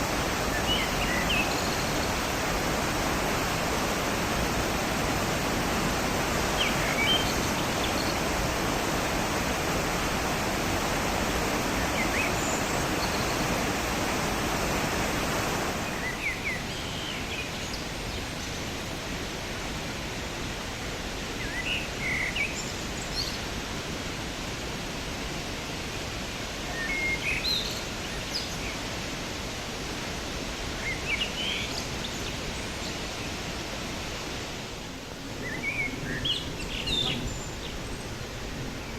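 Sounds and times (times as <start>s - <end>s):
birds chirping: 0.0s - 18.7s, 35.2s - 38.9s
waterfall roaring: 0.0s - 38.9s.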